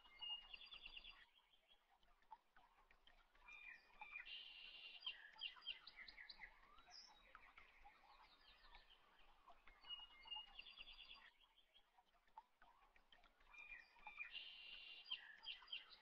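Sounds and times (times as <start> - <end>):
faint birds chirping and trilling: 0.0 - 16.0.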